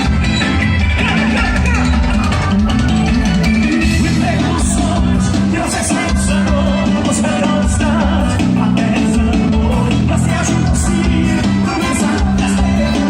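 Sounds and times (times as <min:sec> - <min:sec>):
live band playing: 0:00.0 - 0:13.0
voices singing: 0:03.6 - 0:13.0.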